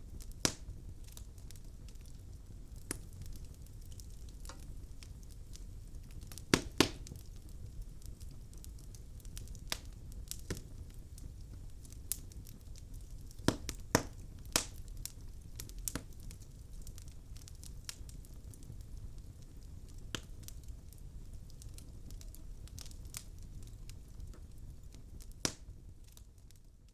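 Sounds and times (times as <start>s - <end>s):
burning logs crackling and popping: 0.0s - 26.9s
low rumble of fire: 0.0s - 26.9s.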